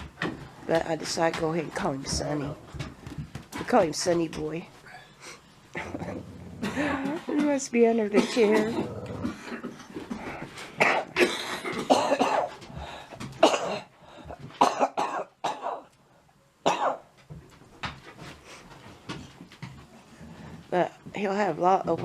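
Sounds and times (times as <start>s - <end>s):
person coughing: 8.1s - 8.8s, 10.8s - 12.6s, 13.4s - 13.9s, 14.6s - 15.9s, 16.7s - 17.0s.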